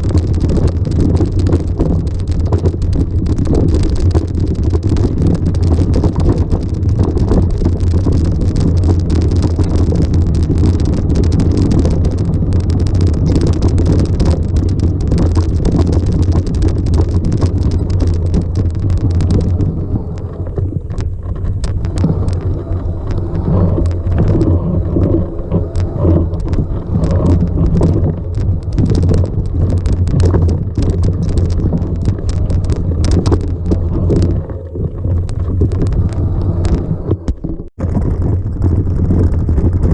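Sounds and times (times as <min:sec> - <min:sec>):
low rumble: 0:00.0 - 0:39.9
wind buffeting microphone: 0:00.0 - 0:39.9.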